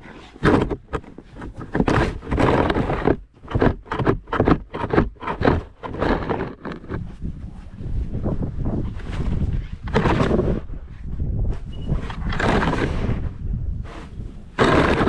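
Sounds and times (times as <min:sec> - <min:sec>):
wind rumble on microphone: 0:00.0 - 0:15.0
snow shovel scraping snow: 0:01.8 - 0:07.1, 0:09.9 - 0:10.6, 0:12.2 - 0:13.2, 0:13.9 - 0:15.0.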